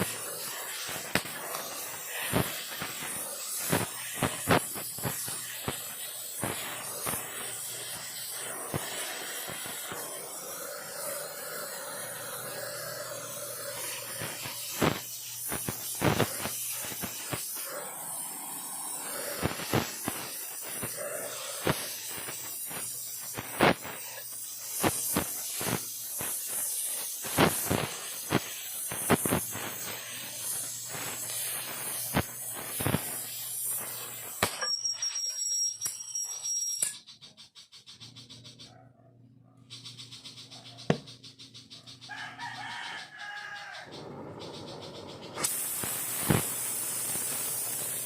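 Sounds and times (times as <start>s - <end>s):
sharp crackles and pops: 0.0s - 35.4s, 43.2s - 48.0s
torch flame hissing: 0.0s - 35.4s, 42.6s - 48.0s
high thin whistle: 33.6s - 37.0s.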